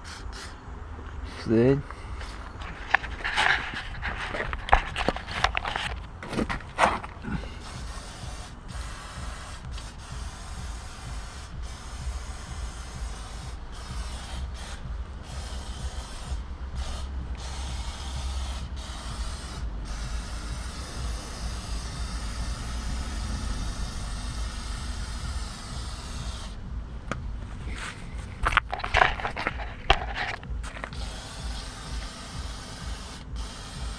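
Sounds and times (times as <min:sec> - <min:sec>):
hissing spray: 0:00.0 - 0:00.7, 0:07.2 - 0:26.8, 0:30.8 - 0:33.9
low steady rumble: 0:00.6 - 0:33.9.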